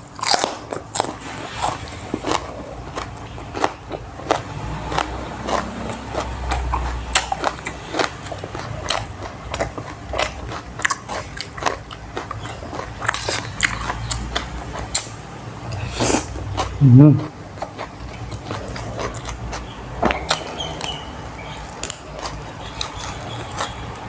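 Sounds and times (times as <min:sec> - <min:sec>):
crunchy clicks and smacks: 0:00.0 - 0:01.3, 0:02.3 - 0:15.8, 0:21.6 - 0:24.0
person chewing and biting food: 0:00.0 - 0:24.0.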